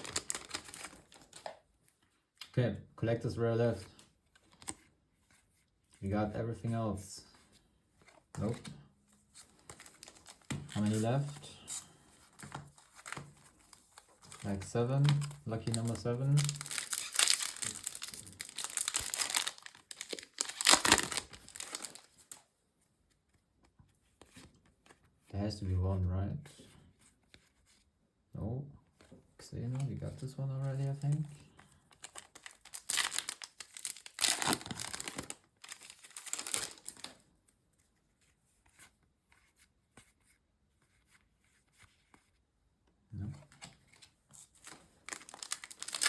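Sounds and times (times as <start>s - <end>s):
foil wrapper crinkling and tearing: 0.0s - 1.5s, 9.6s - 11.9s, 12.7s - 22.4s, 31.9s - 37.2s, 44.6s - 46.0s.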